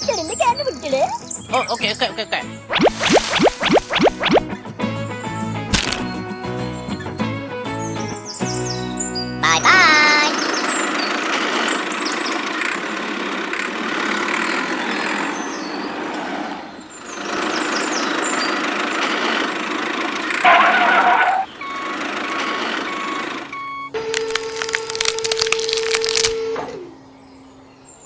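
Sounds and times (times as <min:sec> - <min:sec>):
burst of higher tones: 0:02.7 - 0:04.4.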